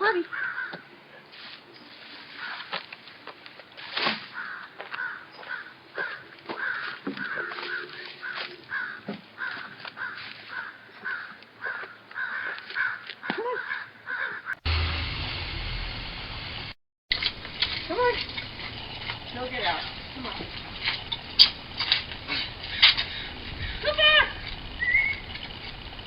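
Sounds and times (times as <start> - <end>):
crow cawing: 0.3 - 0.9, 2.3 - 2.7, 4.3 - 14.6, 18.7 - 25.9.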